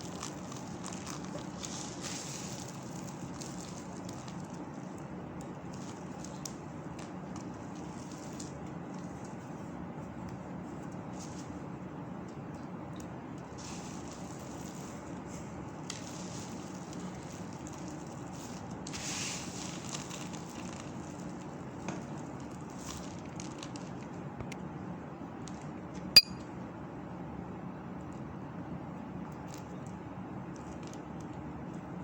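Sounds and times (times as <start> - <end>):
sharp clink: 26.2 - 26.4.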